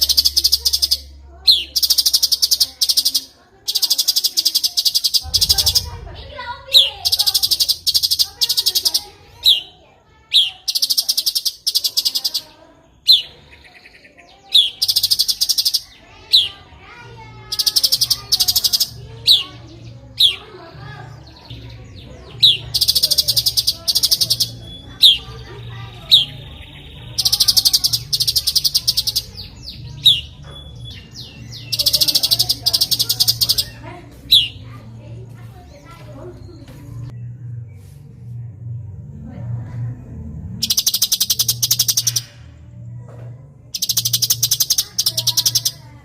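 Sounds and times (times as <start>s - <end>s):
songbird calling: 0.0s - 38.0s, 40.6s - 42.4s, 43.7s - 46.0s
buzzy high-pitched rattling: 1.8s - 9.2s
steady low hum: 5.0s - 9.9s, 16.6s - 44.8s.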